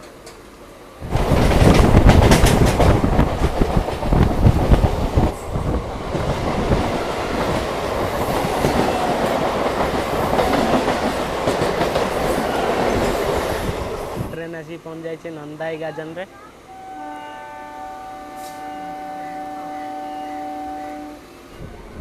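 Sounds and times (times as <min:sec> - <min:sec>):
train wheels clattering on rails: 0:00.0 - 0:14.4.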